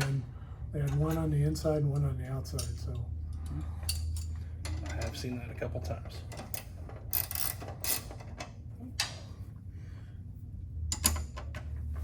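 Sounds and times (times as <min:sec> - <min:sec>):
steady low hum: 0:00.0 - 0:12.0
tools and bolts clinking: 0:02.5 - 0:05.3, 0:06.2 - 0:09.2, 0:10.9 - 0:11.7.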